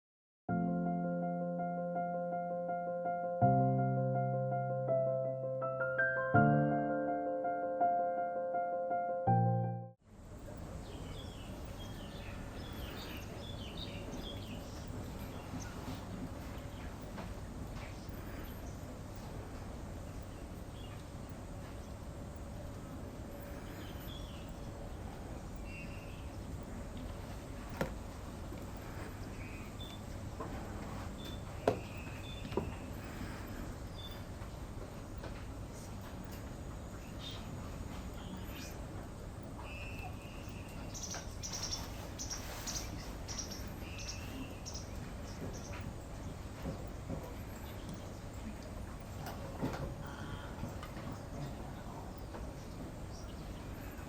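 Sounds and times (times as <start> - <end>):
birds chirping: 10.4 - 54.0
faint bird calls: 31.2 - 34.3, 49.9 - 52.2
whistled bird notes: 39.6 - 41.9.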